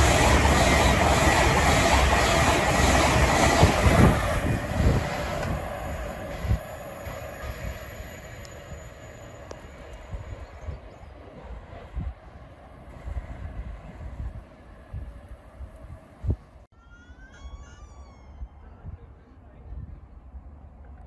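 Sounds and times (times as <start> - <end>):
high-speed train passing: 0.0 - 16.7.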